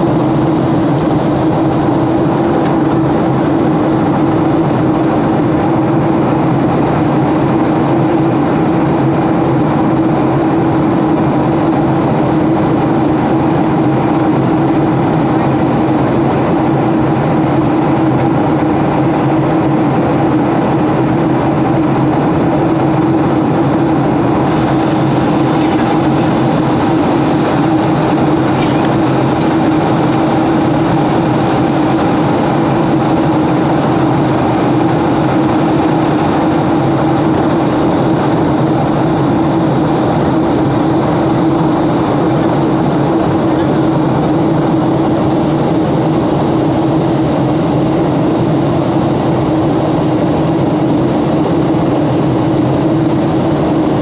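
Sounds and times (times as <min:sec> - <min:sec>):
airliner cabin engine rush: 0:00.0 - 0:54.0
low hum: 0:22.5 - 0:30.0.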